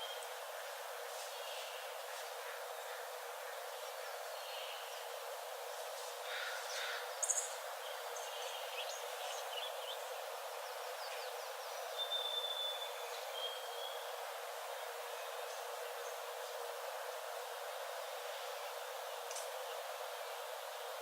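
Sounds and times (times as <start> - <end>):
steady ambient hiss: 0.0 - 21.0
songbirds chirping: 6.5 - 14.1.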